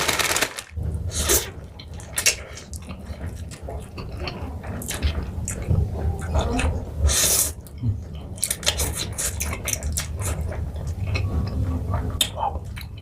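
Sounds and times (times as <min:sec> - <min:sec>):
crunchy snack bites: 0:00.0 - 0:00.7.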